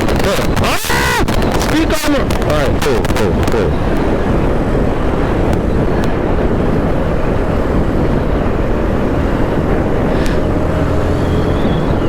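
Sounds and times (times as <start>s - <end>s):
wind rushing over microphone: 0.0s - 12.0s
motorcycle engine running: 3.2s - 12.0s.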